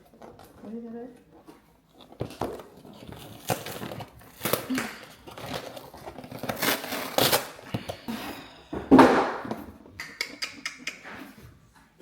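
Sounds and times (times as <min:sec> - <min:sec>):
packaging crinkling and rustling: 0:00.0 - 0:08.1.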